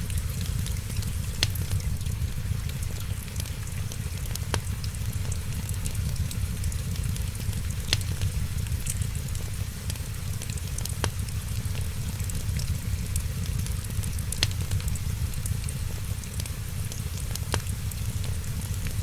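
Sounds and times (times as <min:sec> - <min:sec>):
sharp pops of fire: 0:00.0 - 0:02.8, 0:04.2 - 0:11.8, 0:12.4 - 0:16.5
fire low rumble: 0:00.0 - 0:19.0
wood fire crackling: 0:00.0 - 0:19.0.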